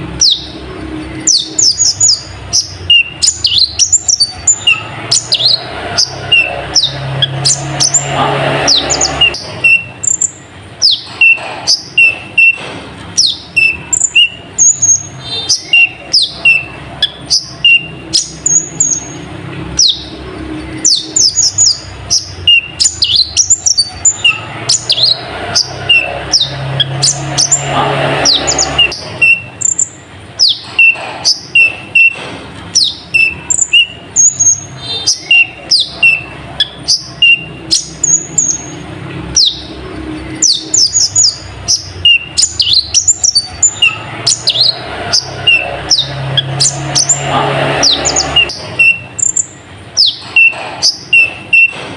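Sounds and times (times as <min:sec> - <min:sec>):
sunbird singing chirps and whistles: 0:08.8 - 0:12.6, 0:13.2 - 0:19.2, 0:20.8 - 0:27.7, 0:28.3 - 0:32.2, 0:32.8 - 0:38.8, 0:40.4 - 0:47.2.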